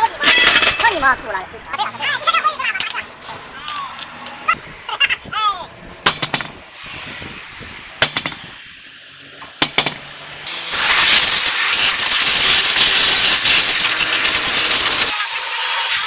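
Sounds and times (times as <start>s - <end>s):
compressed gas hissing: 6.0s - 16.0s.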